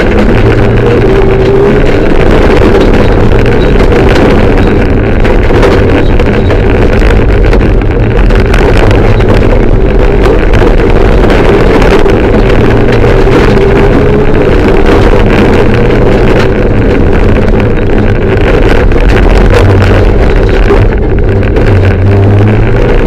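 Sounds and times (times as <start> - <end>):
car engine running hard: 0.0 - 23.0.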